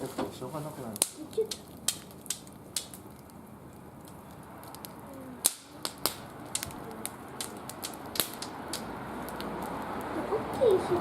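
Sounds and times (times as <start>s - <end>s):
wood fire crackling and popping: 0.0s - 11.0s.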